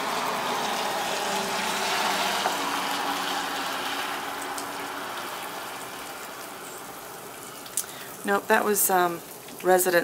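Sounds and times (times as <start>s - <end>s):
vehicle engine driving off: 0.0s - 6.8s.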